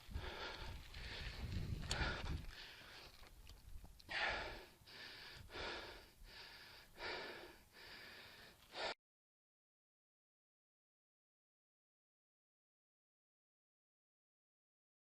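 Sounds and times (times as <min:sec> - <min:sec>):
person breathing hard: 0:00.0 - 0:03.3, 0:04.0 - 0:09.0.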